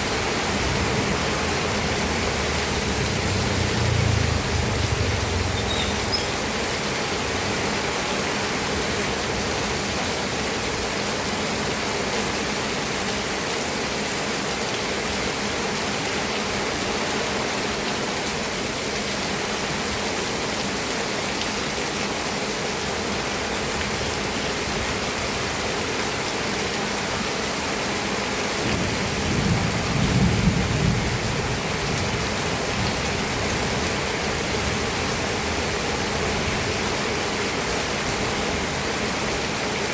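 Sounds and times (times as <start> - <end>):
heavy rain falling: 0.0 - 39.9
low rumble of thunder: 0.4 - 6.6, 28.7 - 36.8.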